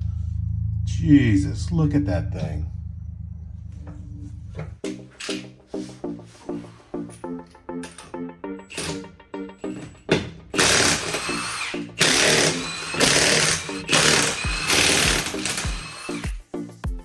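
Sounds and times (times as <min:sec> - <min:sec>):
background music: 0:04.1 - 0:17.0
power tool whining in bursts: 0:09.7 - 0:16.4.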